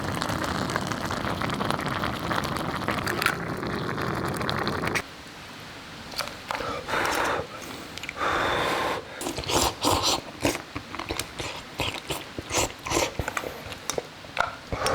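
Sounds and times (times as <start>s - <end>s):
person chewing crunchy food: 9.2s - 14.9s.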